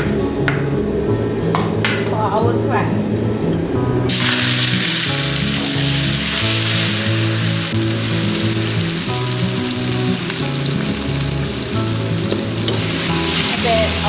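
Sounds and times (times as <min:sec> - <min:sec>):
background music: 0:00.0 - 0:14.0
onions sizzling in hot oil: 0:04.1 - 0:14.0.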